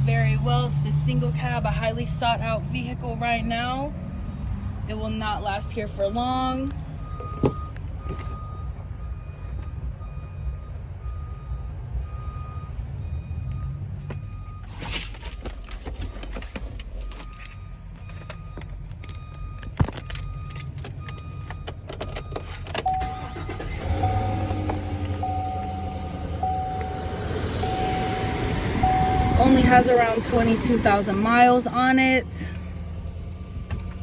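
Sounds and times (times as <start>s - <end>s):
truck warning chime dinging: 0.0s - 14.7s, 17.0s - 34.0s
handling clicks and knocks: 15.1s - 22.9s
low steady rumble: 15.6s - 34.0s.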